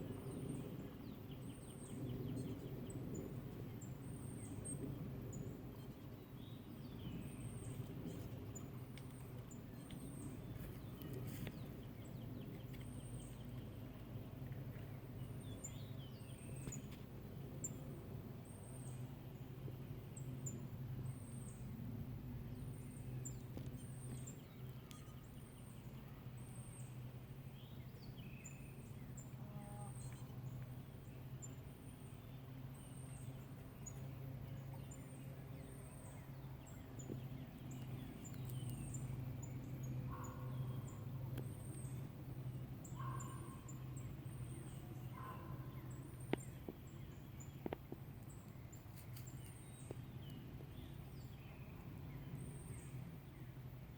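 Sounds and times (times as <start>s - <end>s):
faint bird calls: 40.0s - 42.0s, 42.8s - 46.6s.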